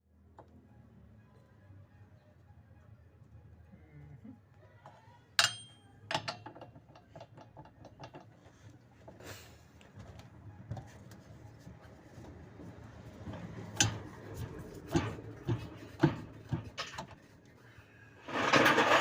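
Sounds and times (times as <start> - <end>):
hand tools clinking: 5.4 - 7.2.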